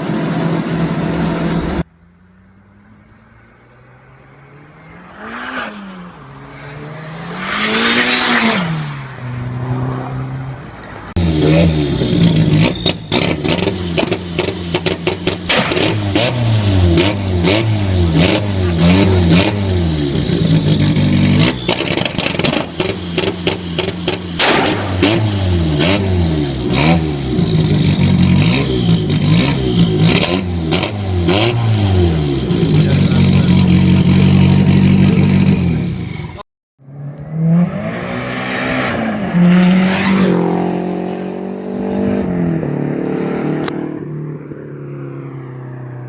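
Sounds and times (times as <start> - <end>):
car engine revving hard: 0.0 - 1.9, 11.1 - 44.2
exhaust bangs: 0.0 - 1.9, 11.1 - 36.4.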